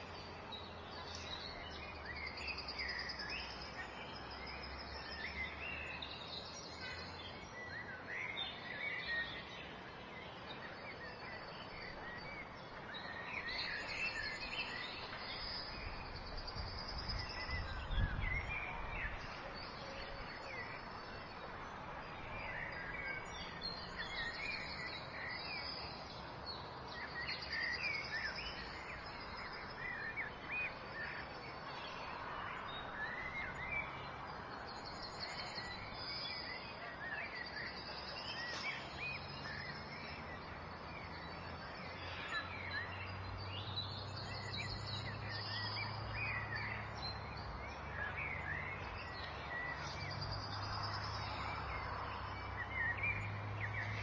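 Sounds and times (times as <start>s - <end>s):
songbirds chirping and singing: 0.0s - 54.0s.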